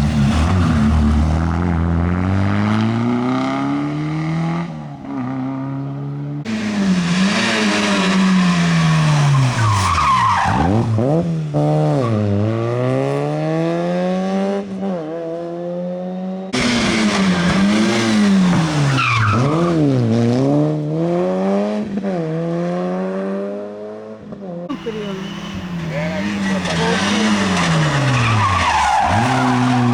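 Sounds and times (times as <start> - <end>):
car engine revving hard: 0.0 - 29.9
tyres squealing: 24.7 - 29.9.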